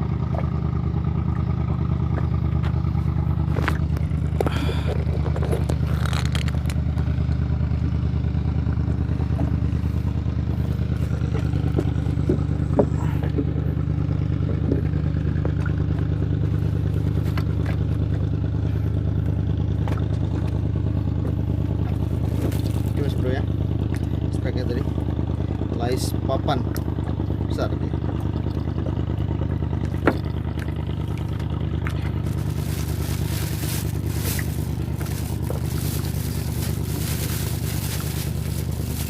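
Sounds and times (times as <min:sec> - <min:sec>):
small engine running: 0:00.0 - 0:39.0
clicks and scrapes of gear: 0:05.0 - 0:06.8.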